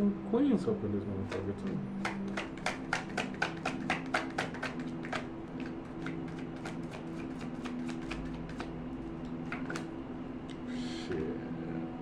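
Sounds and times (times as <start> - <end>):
cards being shuffled: 1.2 - 10.0.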